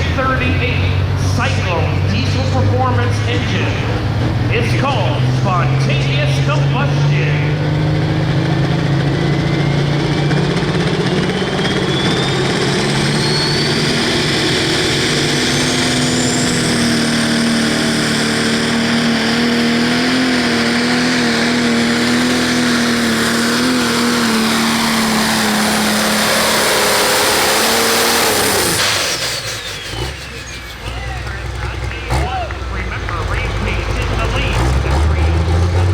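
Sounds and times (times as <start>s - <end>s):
diesel engine running hard: 0.0s - 35.9s
turbo whistle: 10.7s - 17.2s.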